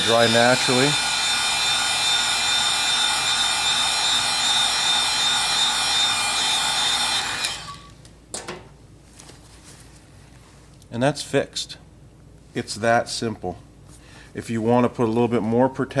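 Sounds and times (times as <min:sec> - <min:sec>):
hair dryer running: 0:00.0 - 0:08.0.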